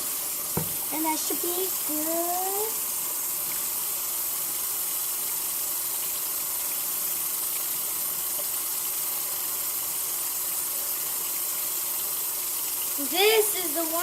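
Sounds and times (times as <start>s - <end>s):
tap running into a sink: 0.0s - 1.2s, 8.3s - 8.6s
dishes being washed: 0.0s - 2.0s.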